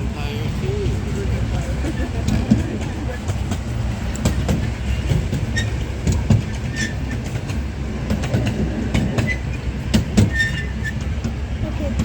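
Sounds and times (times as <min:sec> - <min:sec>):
ride train rumbling on track: 0:00.0 - 0:12.0
high wheel squeaks: 0:01.8 - 0:11.3.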